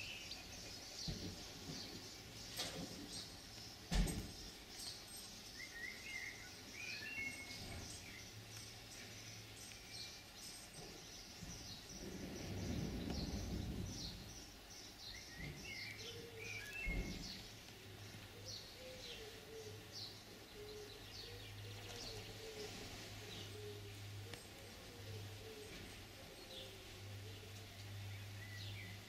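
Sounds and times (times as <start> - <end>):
birds chirping: 0.0 - 29.0
low rumble: 11.9 - 14.6.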